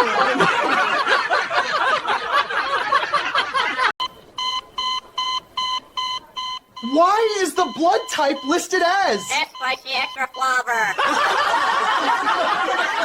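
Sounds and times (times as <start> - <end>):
rapid electronic beeping: 4.0 - 11.1
overlapping chirpy sounds: 4.1 - 11.1.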